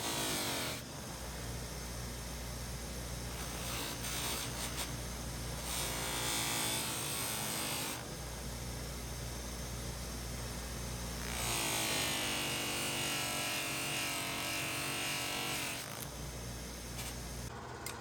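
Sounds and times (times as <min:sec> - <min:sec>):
small electric motor whine: 0:11.2 - 0:17.6.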